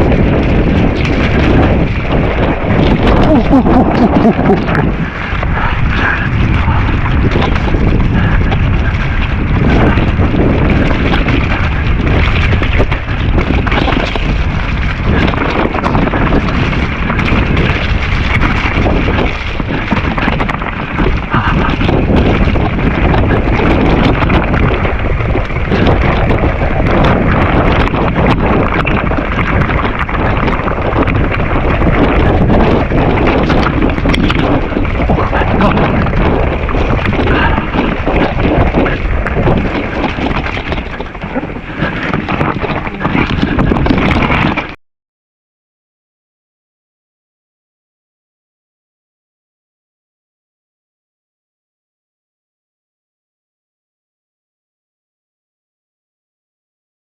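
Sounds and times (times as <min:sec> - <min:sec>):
bike knocks and rattles: 0:00.0 - 0:44.8
bike tyre noise: 0:00.0 - 0:44.8
wind buffeting microphone: 0:00.0 - 0:44.8.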